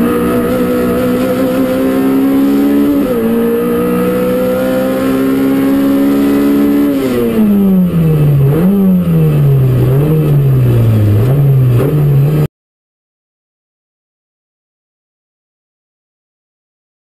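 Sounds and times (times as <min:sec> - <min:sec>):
car engine revving: 0:00.0 - 0:12.5.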